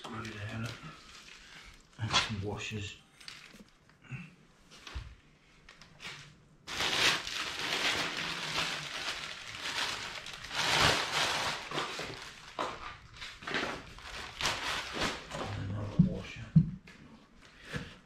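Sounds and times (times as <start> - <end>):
packaging rustling: 5.8 - 15.6.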